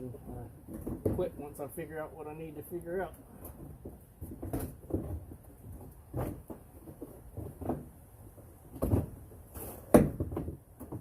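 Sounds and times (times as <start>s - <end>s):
dull knocks and clunks: 0.2s - 1.4s, 3.4s - 9.3s, 9.9s - 11.0s.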